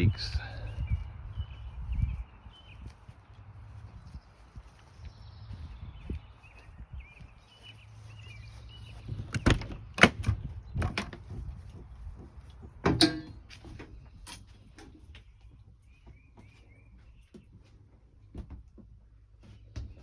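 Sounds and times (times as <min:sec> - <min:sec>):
door clunks and knocks: 0:09.1 - 0:11.5, 0:12.8 - 0:13.4
metallic latch rattle: 0:09.3 - 0:11.2, 0:12.9 - 0:13.4.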